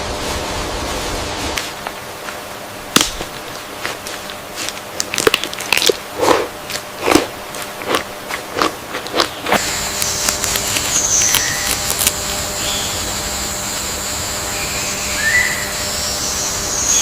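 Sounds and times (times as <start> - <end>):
crunching and snapping cracks: 2.9 - 12.2.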